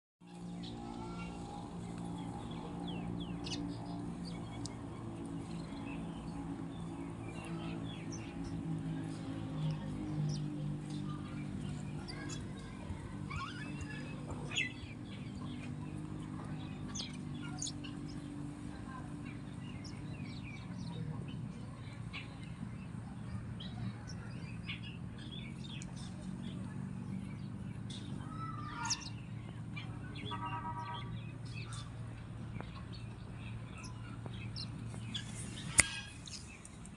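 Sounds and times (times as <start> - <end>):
sparrows chirping: 0.2 - 36.9.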